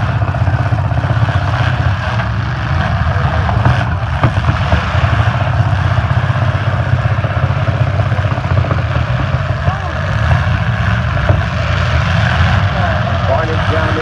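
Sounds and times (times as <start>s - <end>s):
car engines rumbling: 0.0s - 14.0s.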